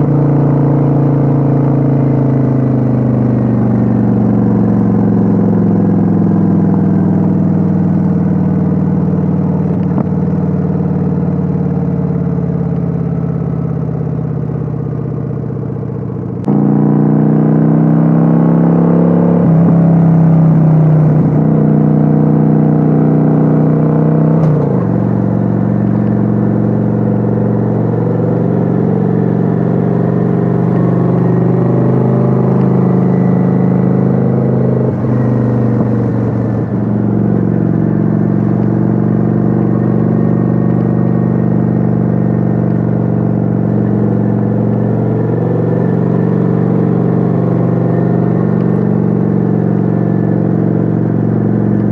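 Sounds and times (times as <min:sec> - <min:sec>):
motorcycle engine while riding: 0:00.0 - 0:51.9.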